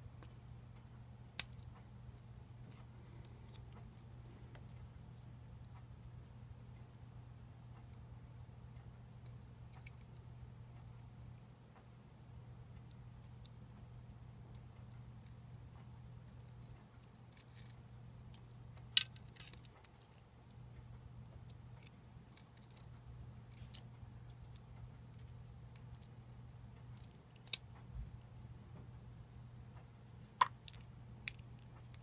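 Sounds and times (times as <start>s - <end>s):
steady low hum: 0.0s - 32.0s
metal parts clicking and clinking: 3.5s - 5.3s, 16.4s - 20.2s, 21.8s - 26.1s, 27.0s - 27.6s, 30.4s - 32.0s.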